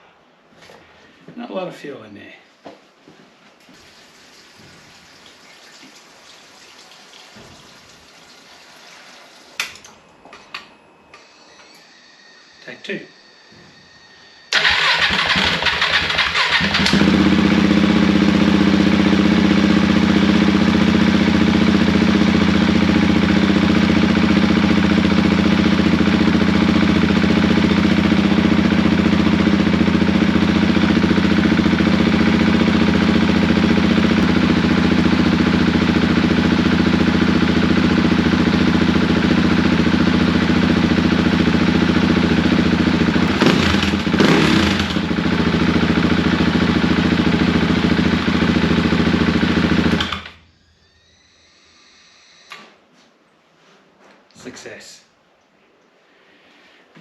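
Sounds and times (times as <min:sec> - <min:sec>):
motorcycle engine starting and idling: 0:14.5 - 0:51.1.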